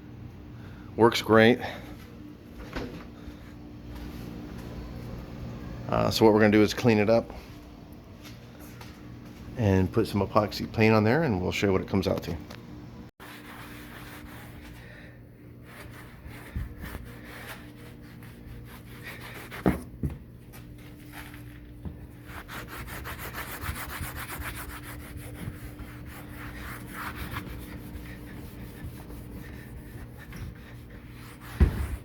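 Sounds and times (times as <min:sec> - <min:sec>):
brush scrubbing a surface: 0:13.2 - 0:19.9, 0:20.5 - 0:32.0.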